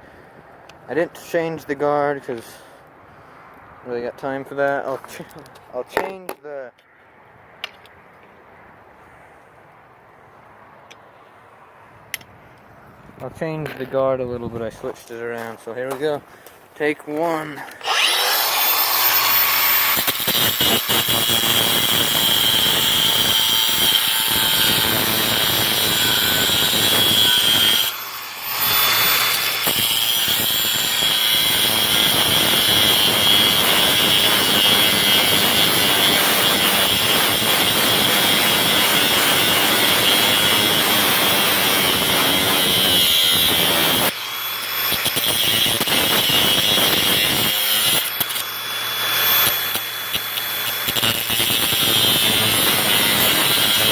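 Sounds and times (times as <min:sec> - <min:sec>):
angle grinder cutting metal: 0:17.2 - 0:53.9.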